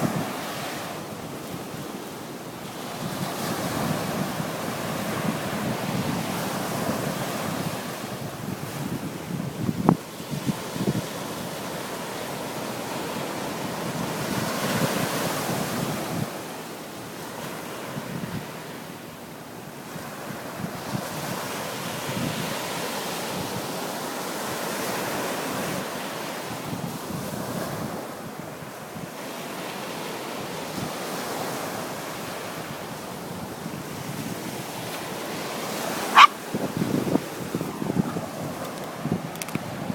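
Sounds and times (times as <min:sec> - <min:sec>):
sea waves washing in: 0:00.0 - 0:09.4, 0:10.0 - 0:39.9
wind buffeting microphone: 0:03.0 - 0:11.5, 0:32.6 - 0:39.9.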